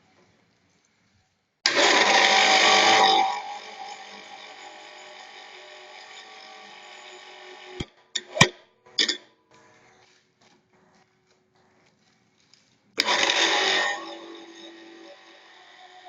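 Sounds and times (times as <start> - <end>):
pipe-bending machine motor running: 1.7 - 8.0.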